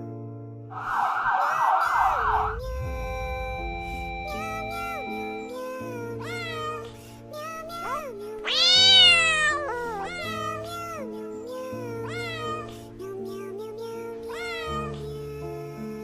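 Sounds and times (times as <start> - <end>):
soft background music: 2.3 - 16.0
cat meowing: 6.2 - 11.1, 11.8 - 12.7, 14.3 - 15.2.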